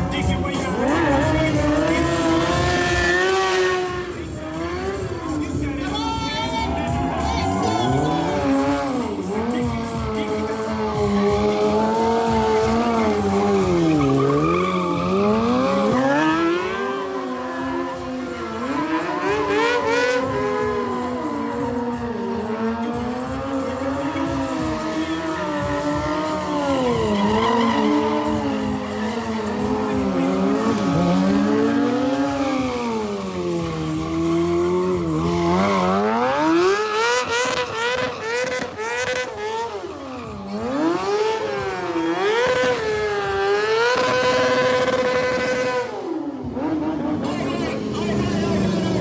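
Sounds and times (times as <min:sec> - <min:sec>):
motorcycle engine revving: 0:00.0 - 0:49.0
tyre squeal: 0:10.9 - 0:17.0, 0:23.8 - 0:39.4.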